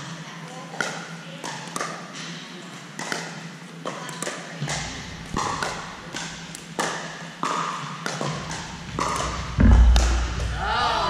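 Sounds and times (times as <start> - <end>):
paddles hitting plastic ball: 3.0 - 10.5
loud heavy thump: 9.6 - 10.6.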